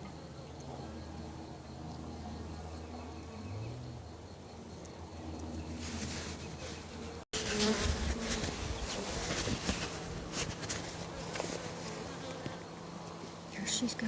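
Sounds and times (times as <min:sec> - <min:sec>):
honey bees buzzing: 0:03.2 - 0:14.0.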